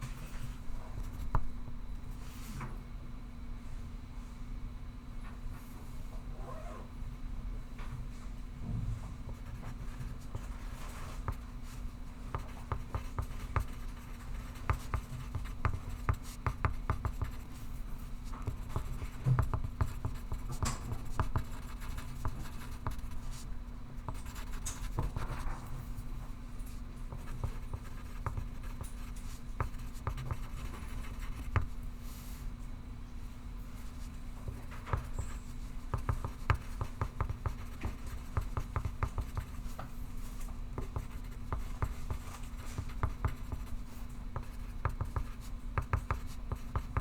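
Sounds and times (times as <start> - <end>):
pencil scratching on paper: 12.4 - 17.6, 18.5 - 23.4, 24.2 - 25.4, 27.1 - 31.7, 34.8 - 39.6, 40.8 - 47.0.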